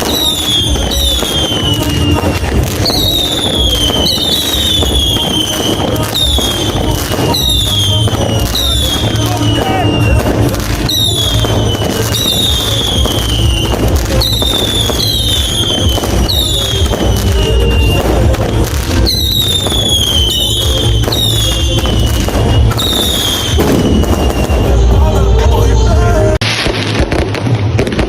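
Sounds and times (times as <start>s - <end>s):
whistling fireworks: 0.0s - 28.0s.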